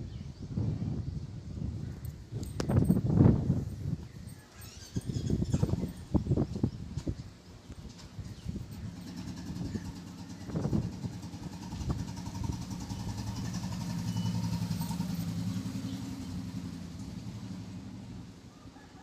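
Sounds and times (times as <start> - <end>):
vehicle engine passing by: 8.4 - 19.0.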